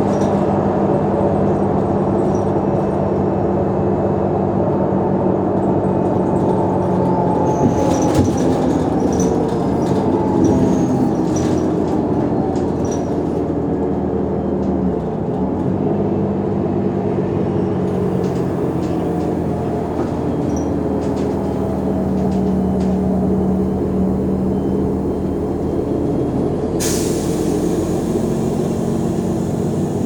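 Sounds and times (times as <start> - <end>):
bus diesel engine droning: 0.0 - 30.0.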